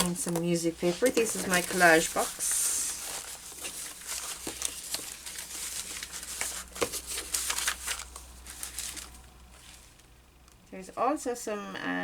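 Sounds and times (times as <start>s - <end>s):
papers rustling and crinkling: 0.0s - 10.2s.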